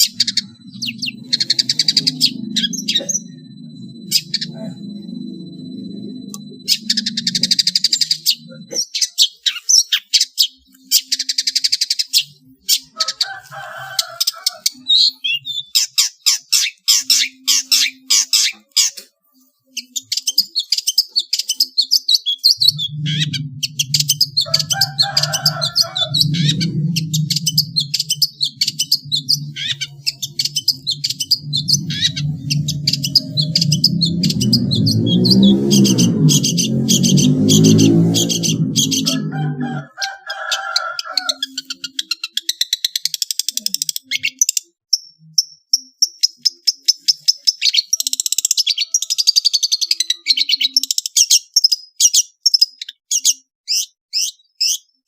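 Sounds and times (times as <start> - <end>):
low droning tone: 0.0 - 8.8, 22.6 - 39.8
songbirds chirping: 0.0 - 55.0.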